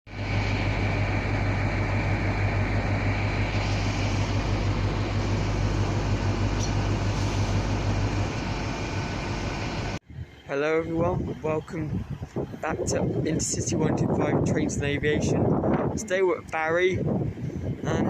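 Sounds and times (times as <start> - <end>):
steady low hum: 0.1 - 16.0
train wheel and rail noise: 0.2 - 10.0.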